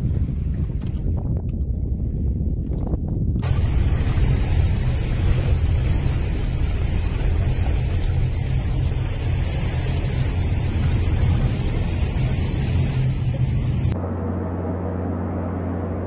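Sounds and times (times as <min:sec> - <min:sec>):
heavy low rumble: 0:00.0 - 0:16.0.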